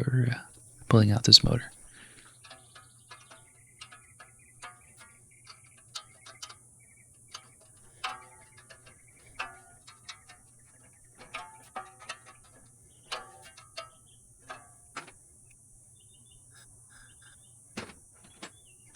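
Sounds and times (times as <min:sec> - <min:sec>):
faint steady hum: 0:00.0 - 0:18.9
hand tools clicking on metal: 0:00.5 - 0:15.6.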